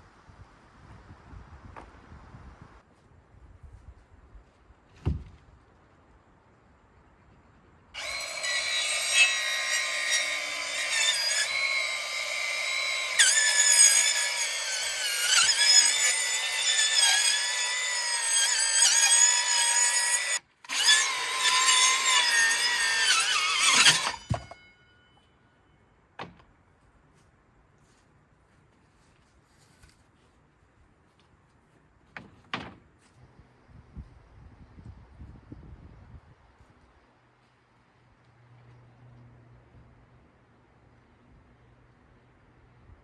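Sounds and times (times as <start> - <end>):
power saw cutting wood: 8.0 - 24.9.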